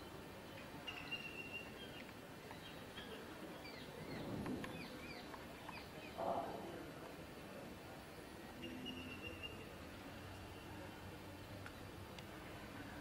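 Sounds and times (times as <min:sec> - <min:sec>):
small birds chirping: 0:00.0 - 0:06.4.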